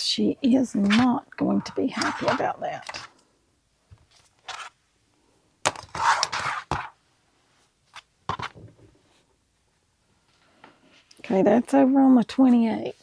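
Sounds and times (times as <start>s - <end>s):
fabric rustling: 0.6s - 3.1s, 4.0s - 4.8s, 5.7s - 7.0s
ruler sliding over cutting surface: 0.8s - 3.1s, 5.7s - 6.9s.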